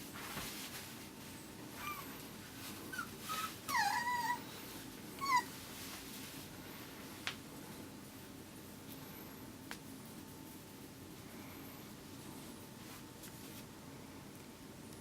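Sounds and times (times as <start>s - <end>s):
puppy whimpering: 1.8s - 2.2s, 2.9s - 4.6s, 5.2s - 5.6s.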